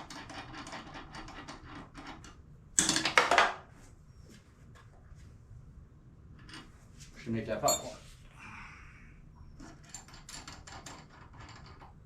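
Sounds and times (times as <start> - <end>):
metal tools clinking and rattling: 7.6 - 8.0.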